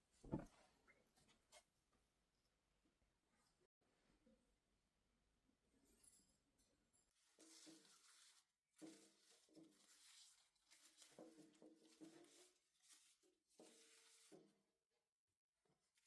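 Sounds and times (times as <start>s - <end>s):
faint soft patter: 6.9s - 14.7s.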